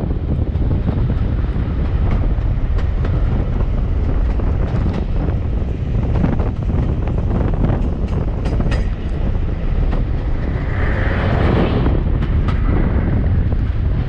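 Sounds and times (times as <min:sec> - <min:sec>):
train rumbling on track: 0:00.0 - 0:14.0
wind buffeting microphone: 0:00.0 - 0:14.0.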